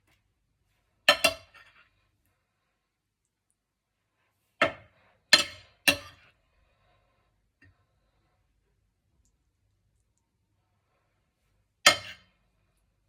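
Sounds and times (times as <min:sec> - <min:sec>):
dishes and utensils clinking: 0:11.9 - 0:12.4.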